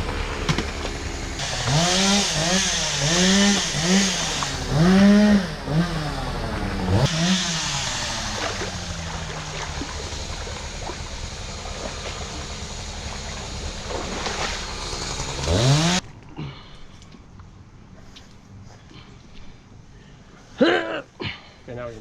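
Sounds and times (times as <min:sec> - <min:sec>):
chainsaw revving: 0:00.0 - 0:16.0.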